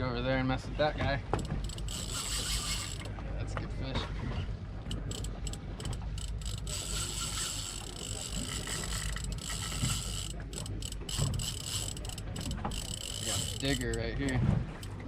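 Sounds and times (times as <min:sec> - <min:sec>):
low steady rumble: 0:00.0 - 0:15.0
fishing reel whirring and clicking: 0:01.3 - 0:03.1, 0:04.8 - 0:15.0.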